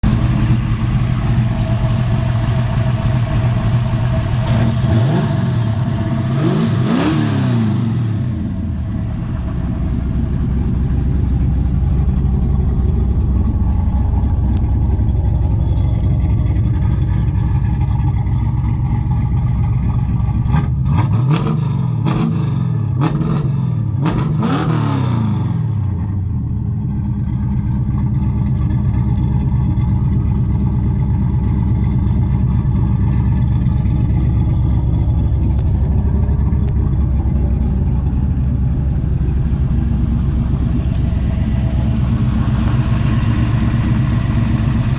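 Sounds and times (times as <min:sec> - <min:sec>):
car engine idling and revving: 0:00.0 - 0:44.9.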